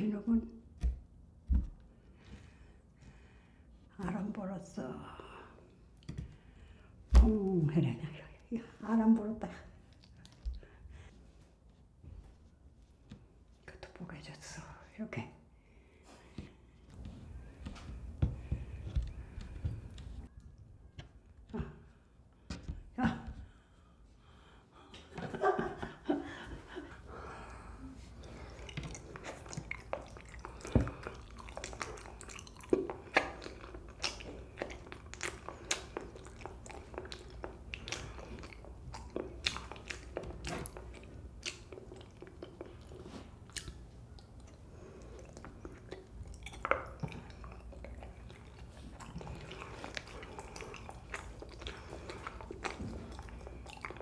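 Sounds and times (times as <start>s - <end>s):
person chewing jelly: 9.7s - 11.2s, 15.6s - 22.7s, 26.7s - 54.0s
sticky mouth clicks and smacks: 9.8s - 10.8s, 28.2s - 54.0s.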